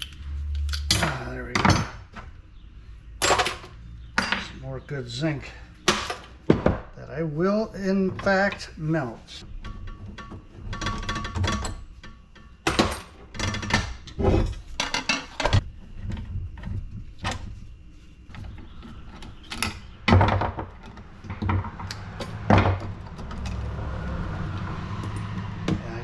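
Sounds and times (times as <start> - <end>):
metal parts knocking and rattling: 0.0 - 2.4, 3.2 - 4.6, 9.5 - 17.6, 18.3 - 23.6.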